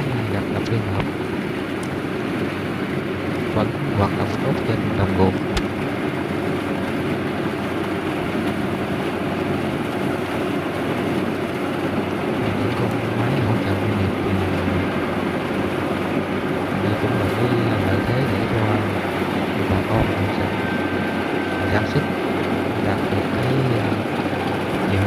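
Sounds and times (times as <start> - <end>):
combine harvester running: 0.0 - 25.0.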